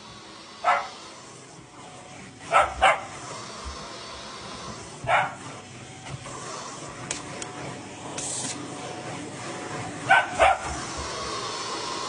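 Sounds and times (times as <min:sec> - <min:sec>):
dog barking: 0:00.6 - 0:01.0, 0:02.5 - 0:03.1, 0:05.0 - 0:05.4, 0:10.1 - 0:10.7.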